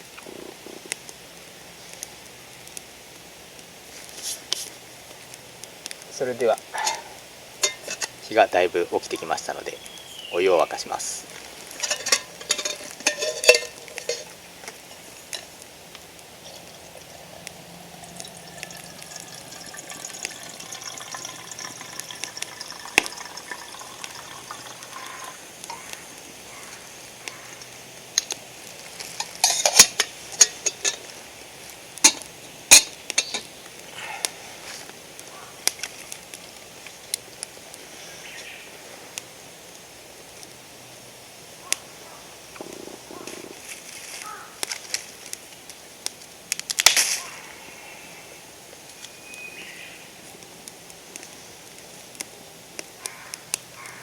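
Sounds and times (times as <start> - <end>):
campfire crackling: 0.0 - 54.0
sharp fire pops: 42.5 - 47.4.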